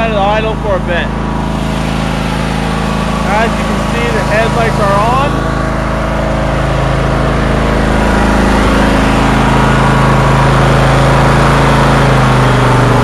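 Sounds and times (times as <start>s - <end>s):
riding mower engine idling: 0.0s - 13.0s.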